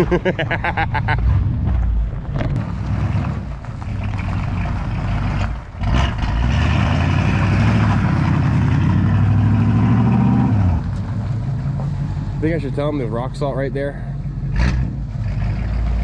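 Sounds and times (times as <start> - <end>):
truck engine running: 0.0 - 16.0.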